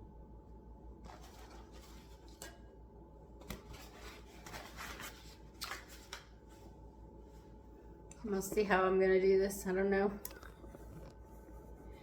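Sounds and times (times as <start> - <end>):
rubbing and rustling: 3.6 - 6.7.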